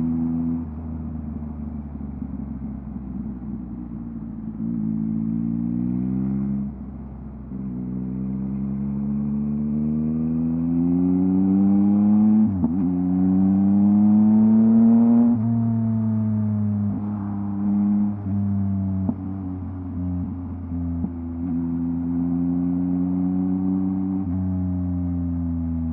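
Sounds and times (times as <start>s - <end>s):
motorcycle engine revving: 7.6s - 19.4s.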